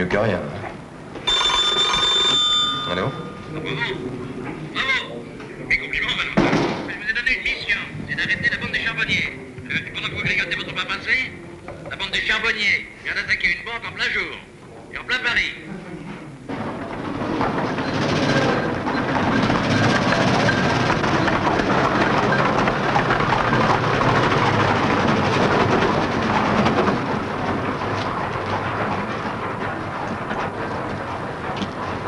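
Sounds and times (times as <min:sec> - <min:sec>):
old car engine clattering: 0:16.5 - 0:32.0
car driving over cobblestones: 0:16.6 - 0:32.0.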